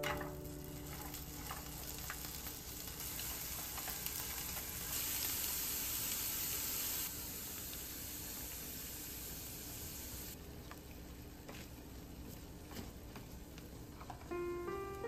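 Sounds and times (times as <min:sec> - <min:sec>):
food sizzling in a frying pan: 0:00.0 - 0:11.4.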